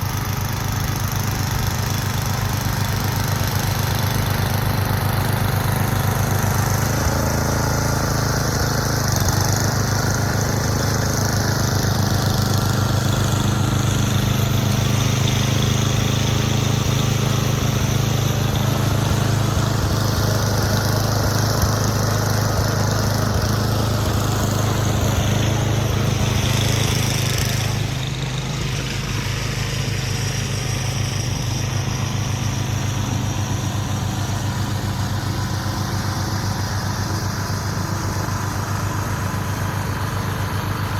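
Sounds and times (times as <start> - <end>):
engine running: 0.0 - 40.9.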